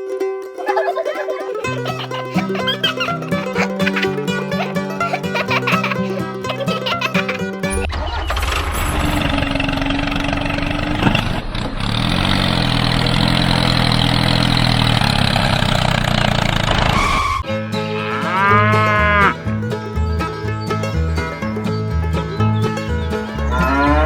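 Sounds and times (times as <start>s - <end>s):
plucked-string music: 0.0s - 15.7s, 17.3s - 24.0s
low engine hum: 1.6s - 17.4s
cows mooing: 17.8s - 19.4s, 23.5s - 24.0s.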